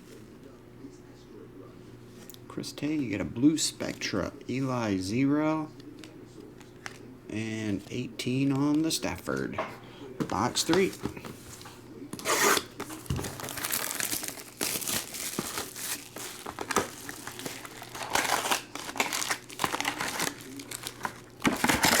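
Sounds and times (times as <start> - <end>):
plastic wrapping crinkling and tearing: 12.2 - 22.0.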